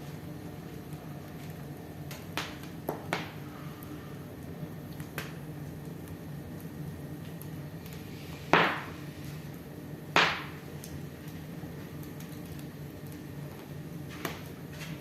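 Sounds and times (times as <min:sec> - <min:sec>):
low steady hum: 0:00.0 - 0:14.9
fireplace fire crackling: 0:00.0 - 0:15.0
loud fire pops: 0:00.0 - 0:15.0.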